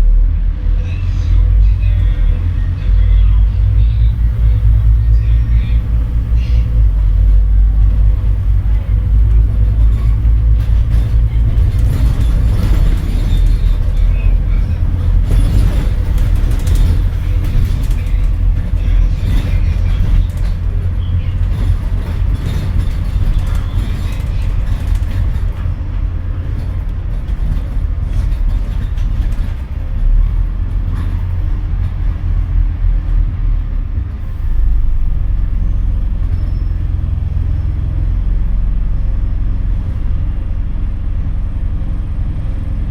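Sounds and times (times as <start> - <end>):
bus diesel engine droning: 0.0 - 42.9.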